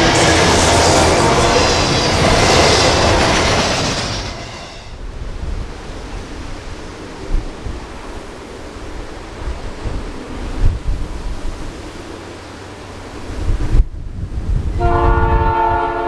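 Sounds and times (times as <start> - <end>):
freight train wheels clattering: 0.0 - 7.2
wind noise on microphone: 0.0 - 12.2, 13.0 - 16.0.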